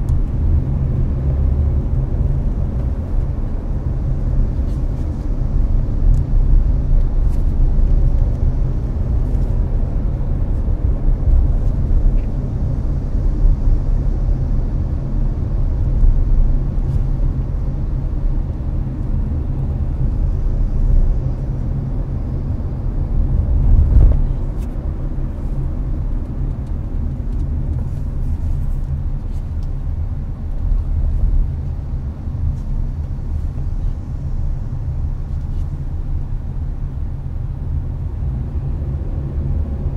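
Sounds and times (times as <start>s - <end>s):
air-conditioning fan: 0.0s - 39.9s
road and engine noise in car: 0.0s - 39.9s.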